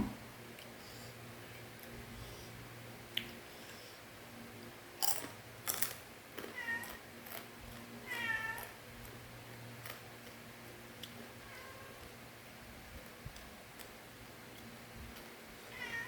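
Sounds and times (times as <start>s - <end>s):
cat meowing: 8.0s - 8.6s, 15.7s - 16.0s.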